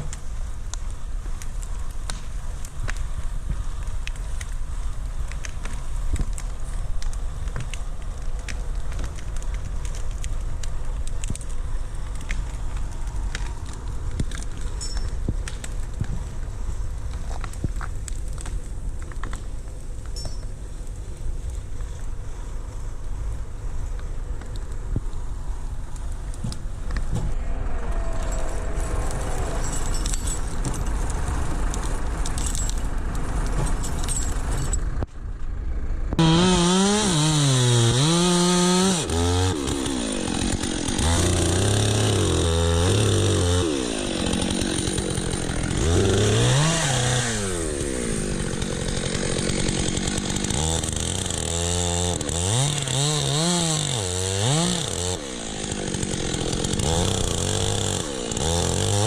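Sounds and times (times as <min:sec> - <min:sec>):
chainsaw revving: 0:36.2 - 0:59.0.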